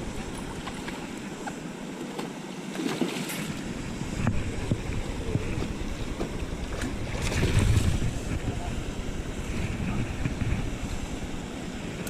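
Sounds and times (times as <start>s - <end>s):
wind buffeting microphone: 3.5s - 12.0s.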